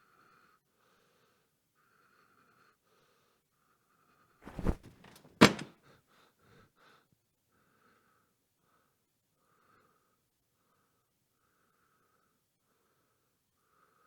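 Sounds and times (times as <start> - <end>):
faint short puffs: 4.5 - 5.6
sharp thump: 4.5 - 5.7
small knocks: 4.6 - 5.7.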